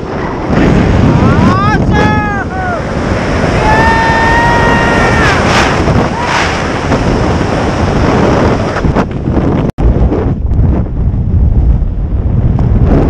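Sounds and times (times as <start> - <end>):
strong wind on microphone: 0.0 - 13.0
person yelling: 1.2 - 2.9, 3.6 - 5.5.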